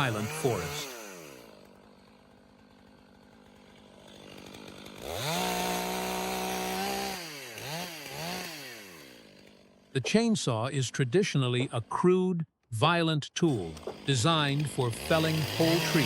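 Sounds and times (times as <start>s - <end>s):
chainsaw revving: 0.0s - 10.0s, 13.4s - 16.0s.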